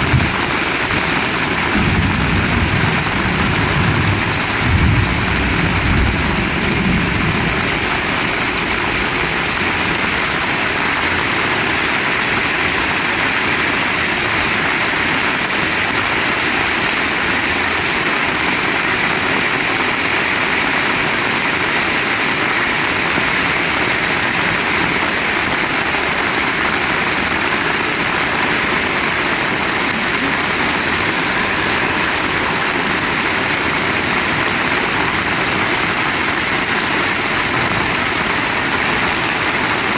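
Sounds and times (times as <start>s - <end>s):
heavy rain pouring: 0.0s - 39.9s
low rumble: 1.7s - 10.4s.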